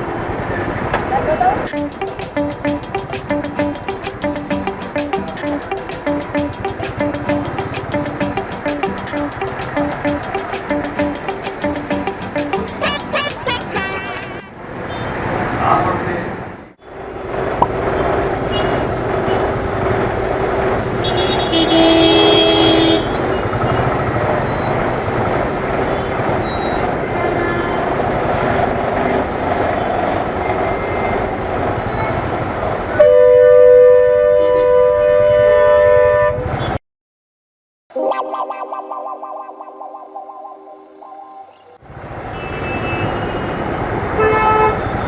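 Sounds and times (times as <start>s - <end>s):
vehicle horn honking: 13.6s - 15.1s, 21.0s - 23.1s
long loud horn blast: 33.0s - 36.5s.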